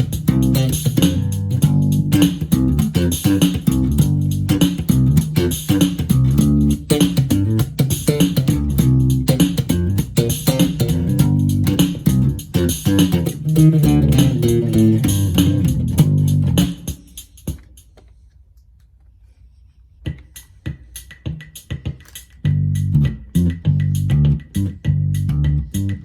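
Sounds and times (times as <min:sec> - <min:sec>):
electric bass improvised line: 0:00.0 - 0:17.0, 0:22.4 - 0:26.0
drum machine beat: 0:00.0 - 0:17.9, 0:20.0 - 0:26.0.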